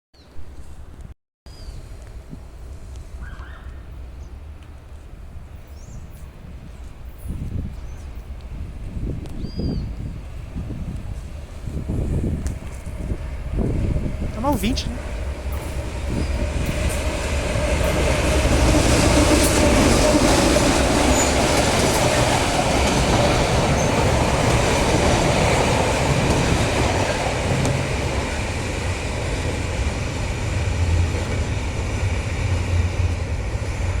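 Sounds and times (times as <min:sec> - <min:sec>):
freight train rumbling past: 0:02.2 - 0:34.0
wheels clattering on rails: 0:15.4 - 0:34.0.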